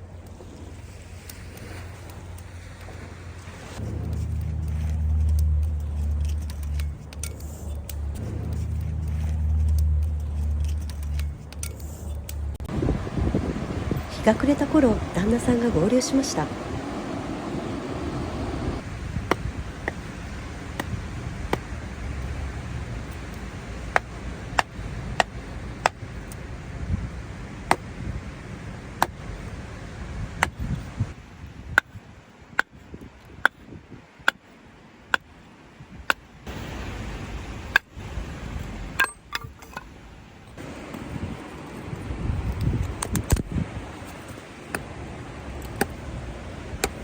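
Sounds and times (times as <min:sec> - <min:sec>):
low rumble: 0:03.0 - 0:27.4
wood fire crackling: 0:03.4 - 0:27.7.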